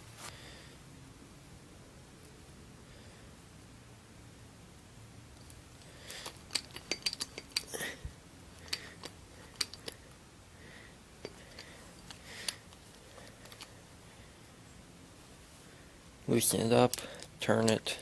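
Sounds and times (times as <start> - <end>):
crimping tool clicking: 6.1 - 7.7.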